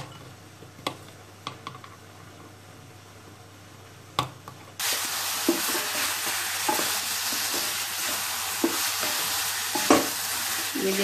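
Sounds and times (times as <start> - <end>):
carrots sizzling in a pan: 4.8 - 11.0.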